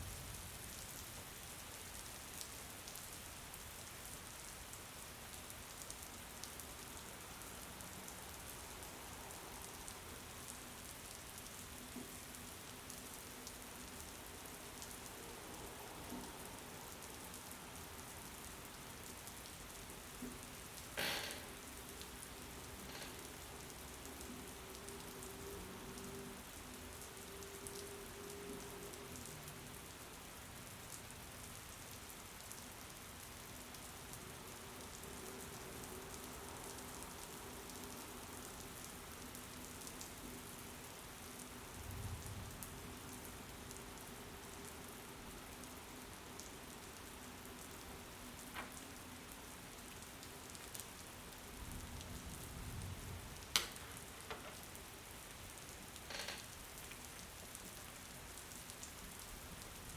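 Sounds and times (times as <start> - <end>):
faint steady hum: 0.0 - 59.9
steady rain hiss: 0.0 - 59.9
small clicks: 53.5 - 54.6, 56.0 - 56.6.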